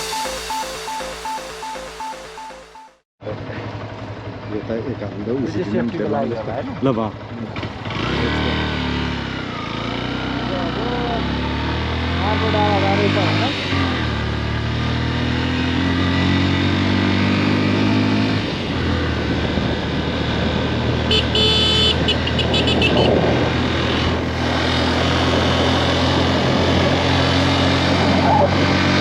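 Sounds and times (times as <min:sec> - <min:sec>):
high-pitched horn toots: 0:00.0 - 0:03.0, 0:21.1 - 0:23.3
motorcycle engine running: 0:03.2 - 0:14.9, 0:18.5 - 0:29.0.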